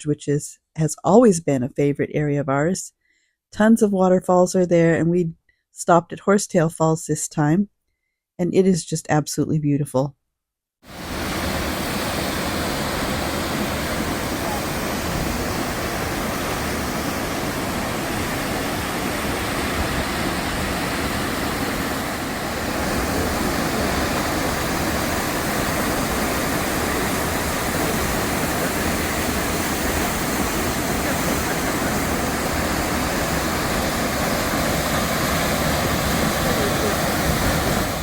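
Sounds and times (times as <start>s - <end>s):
waterfall rushing: 10.9s - 38.0s.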